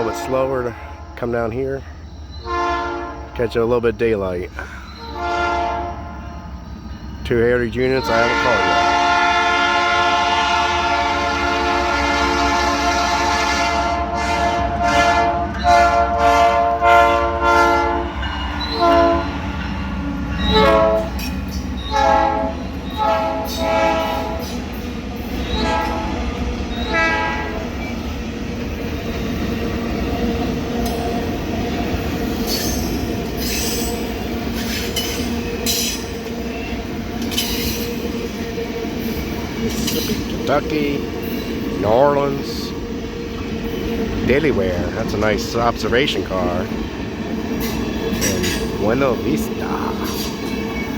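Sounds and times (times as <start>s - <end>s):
locomotive air horn: 0.0s - 1.1s, 2.4s - 3.3s, 5.0s - 6.5s, 8.0s - 19.4s, 20.4s - 24.6s, 25.4s - 27.7s
train wheels rumbling on rail: 0.0s - 50.9s
wheels clicking over rail joints: 18.2s - 50.9s.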